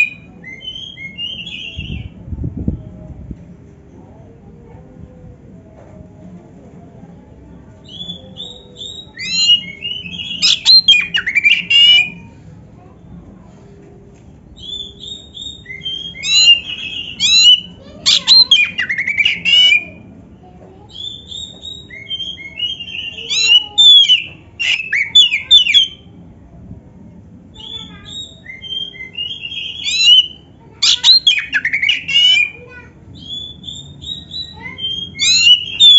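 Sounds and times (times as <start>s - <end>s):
bird singing whistles and trills: 0.0s - 2.2s, 7.8s - 12.2s, 14.6s - 20.0s, 20.9s - 26.0s, 27.6s - 32.6s, 33.2s - 35.9s.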